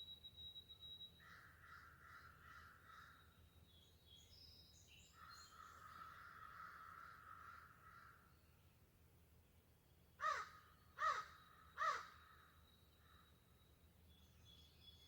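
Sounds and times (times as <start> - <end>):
bird harsh calls: 10.2 - 12.2.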